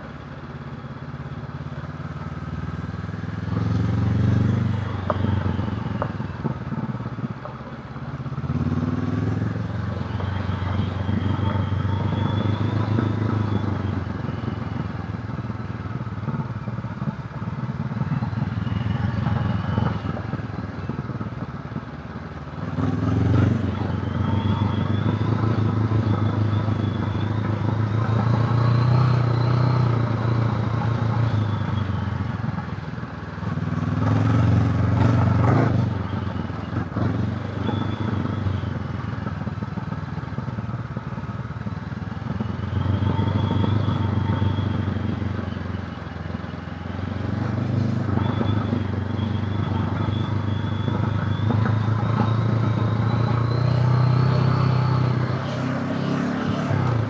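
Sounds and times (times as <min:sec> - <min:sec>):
motorcycle engine revving: 0:08.2 - 0:21.2, 0:22.5 - 0:40.8, 0:42.1 - 0:57.0.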